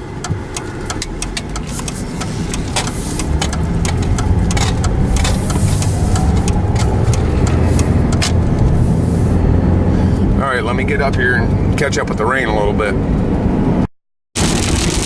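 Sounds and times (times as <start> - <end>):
car engine from inside cabin: 0.0 - 13.8
raindrops ticking on windshield: 0.2 - 9.4, 14.4 - 15.0
faint rising whine: 1.4 - 11.7.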